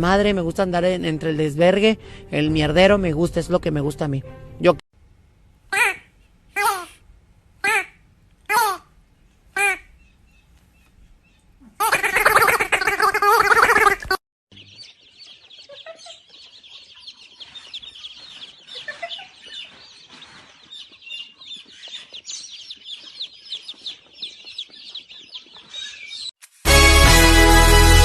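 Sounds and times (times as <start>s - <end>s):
birds chirping: 7.6s - 26.3s.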